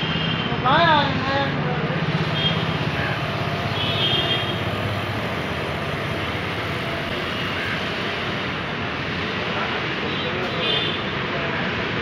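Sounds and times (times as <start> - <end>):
train wheels rumbling on rail: 2.0 - 8.2.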